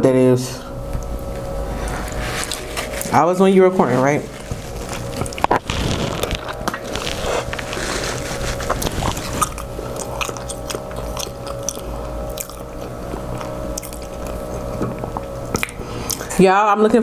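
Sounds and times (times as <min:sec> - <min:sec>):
machine drone outside: 0:00.0 - 0:16.4
person chewing and biting: 0:04.3 - 0:16.4.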